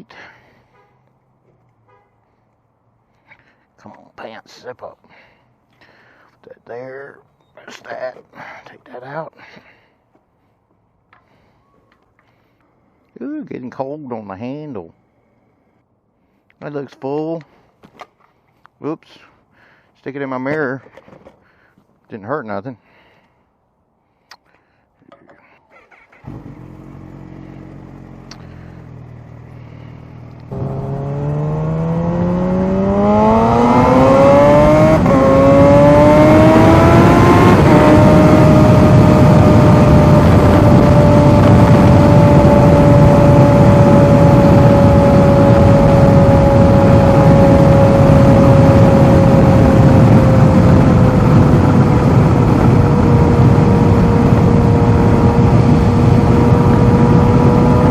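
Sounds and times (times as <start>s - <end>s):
motorcycle engine: 25.7s - 57.9s
wind noise on microphone: 32.5s - 57.9s.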